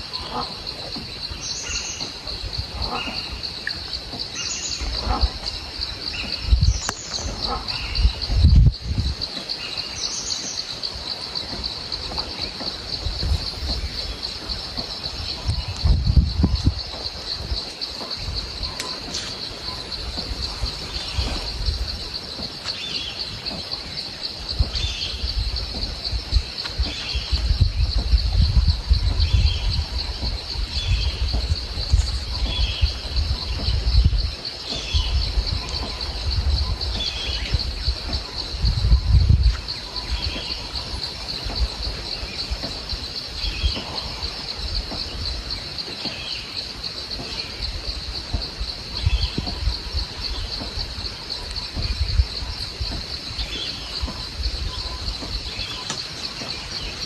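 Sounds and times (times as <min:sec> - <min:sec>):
high-pitched insect chorus: 0:00.0 - 0:57.0
low rumble: 0:11.4 - 0:45.6.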